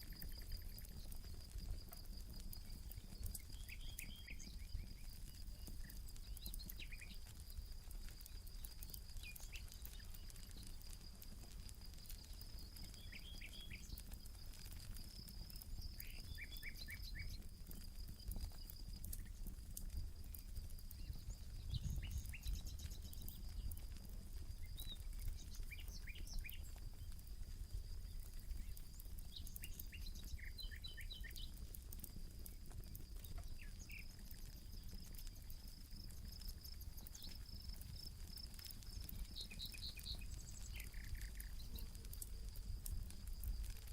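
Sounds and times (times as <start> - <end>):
campfire crackling: 0.0 - 43.9
high insect trill: 32.5 - 43.9.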